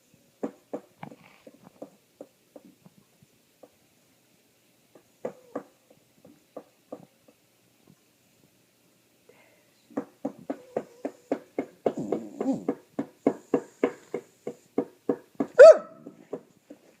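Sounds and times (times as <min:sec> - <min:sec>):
dog squealing: 0:15.6 - 0:16.0.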